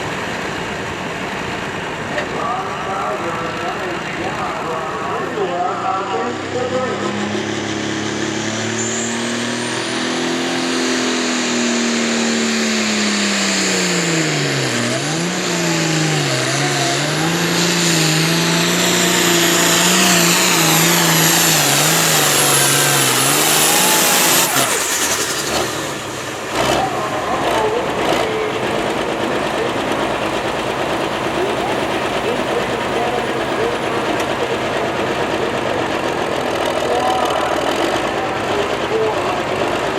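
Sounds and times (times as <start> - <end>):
tractor engine under heavy load: 0.0 - 39.9.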